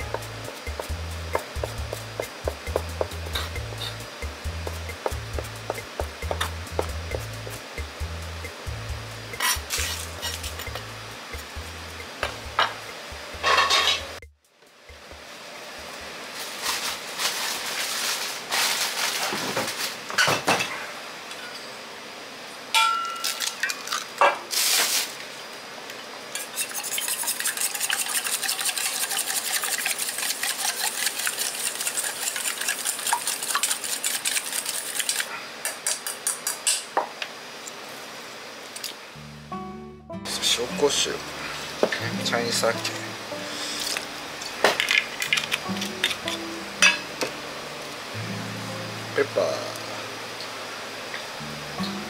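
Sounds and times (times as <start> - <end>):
egg beaten in a metal bowl: 26.4 - 35.3.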